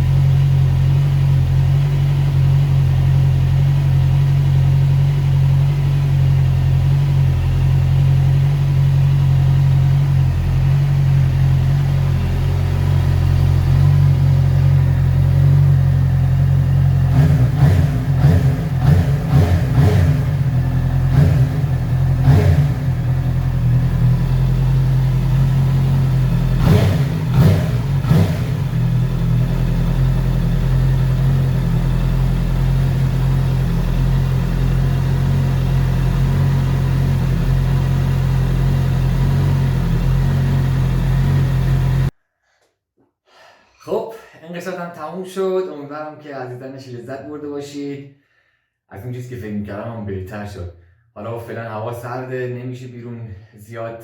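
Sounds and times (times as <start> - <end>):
motorcycle engine idling: 0.0 - 42.1
motorcycle throttle blips: 0.0 - 42.1.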